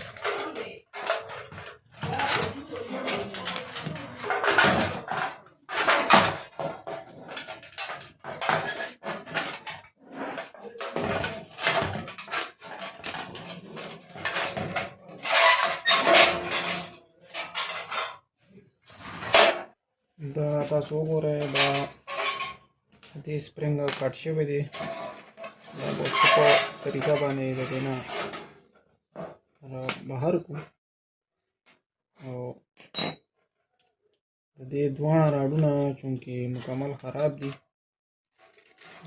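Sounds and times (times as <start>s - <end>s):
heater parts clattering: 0.0s - 18.2s.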